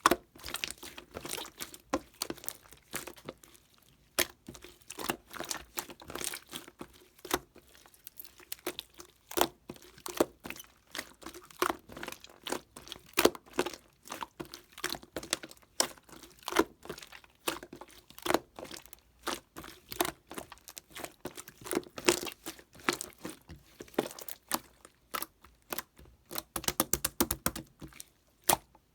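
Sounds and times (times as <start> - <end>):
crinkling and crunching: 9.7 - 26.9, 27.5 - 28.9.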